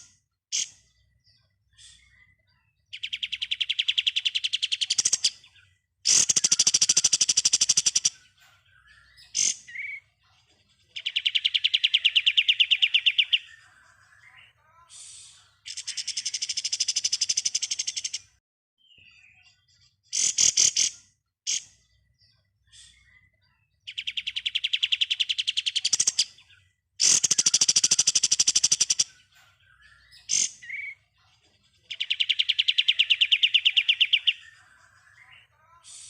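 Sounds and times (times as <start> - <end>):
short sharp bird calls: 23.9 - 31.0.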